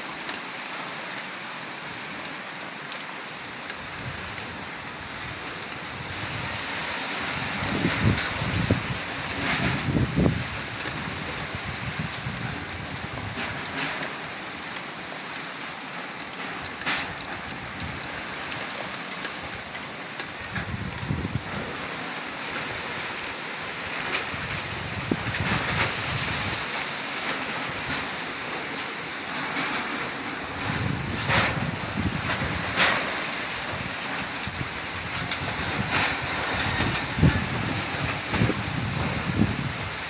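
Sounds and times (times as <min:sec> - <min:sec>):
heavy rain pouring: 0:00.0 - 0:40.0
wind buffeting microphone: 0:03.8 - 0:13.9, 0:20.4 - 0:23.2, 0:23.8 - 0:26.8, 0:29.6 - 0:40.0.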